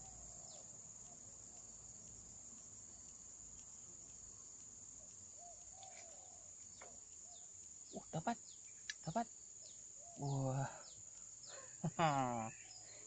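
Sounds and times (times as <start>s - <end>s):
faint bird chirps: 0.0s - 1.7s, 5.0s - 13.0s
high-pitched insect drone: 7.3s - 13.0s.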